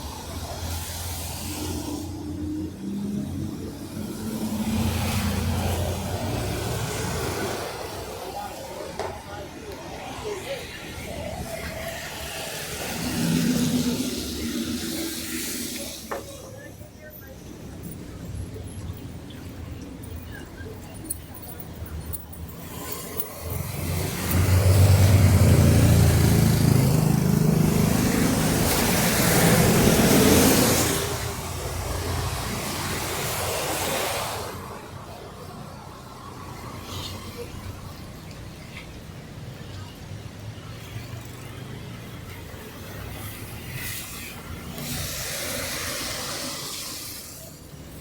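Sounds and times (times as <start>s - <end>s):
low traffic rumble: 0.0s - 48.0s
tyre hiss through water: 12.2s - 16.4s, 43.7s - 47.6s
vehicle passing by: 22.5s - 34.8s.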